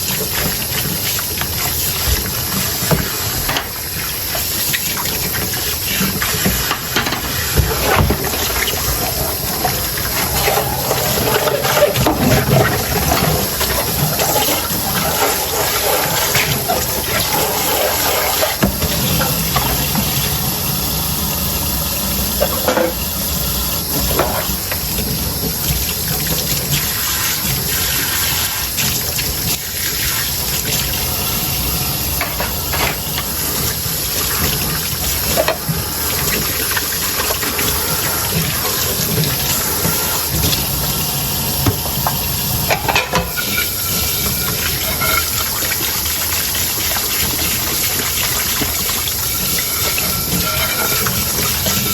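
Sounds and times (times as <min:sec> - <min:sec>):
tap water running into sink: 0:00.0 - 0:51.9
dishes clinking: 0:22.4 - 0:23.1, 0:32.2 - 0:33.4, 0:41.6 - 0:45.8, 0:49.4 - 0:51.9.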